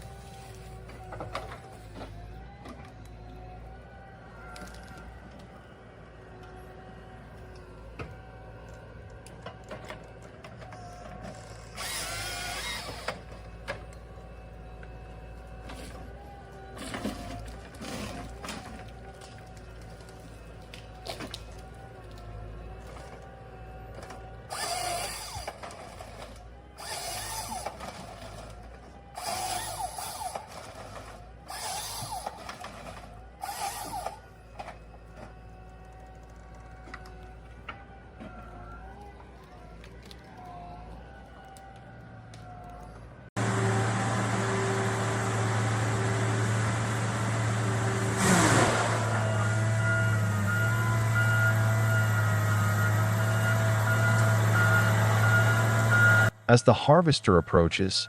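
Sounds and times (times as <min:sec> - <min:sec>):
low engine hum: 0:00.0 - 0:56.6
grinding machine noise: 0:11.6 - 0:13.4, 0:24.5 - 0:28.5, 0:29.2 - 0:34.3, 0:43.4 - 0:57.8.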